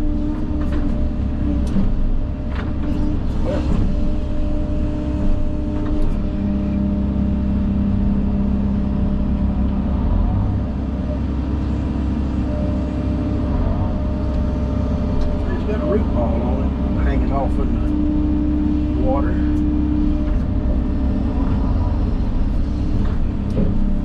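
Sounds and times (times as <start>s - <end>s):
machine engine humming: 0.0s - 24.0s.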